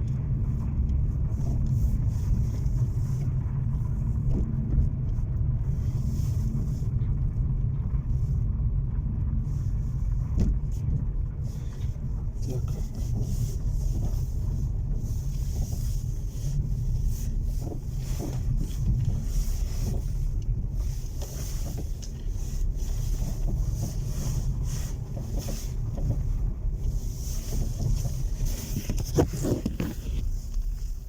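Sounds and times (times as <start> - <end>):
car road rumble: 0.0 - 31.0.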